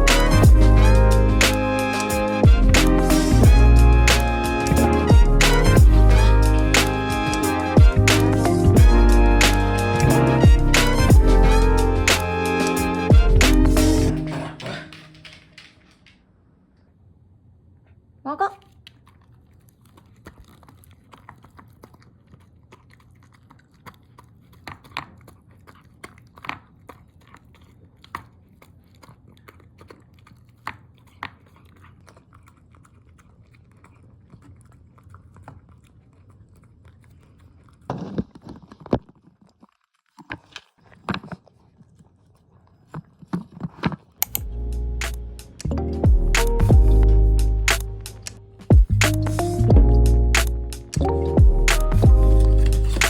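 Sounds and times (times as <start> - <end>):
music: 0.0 - 15.4, 44.4 - 53.0
dog chewing and crunching: 18.7 - 53.0.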